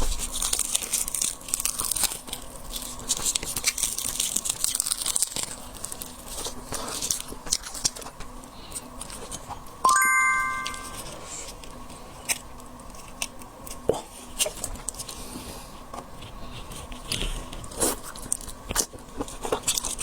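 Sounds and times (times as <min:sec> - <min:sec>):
shrimp shells cracking and tearing: 0:00.4 - 0:05.6.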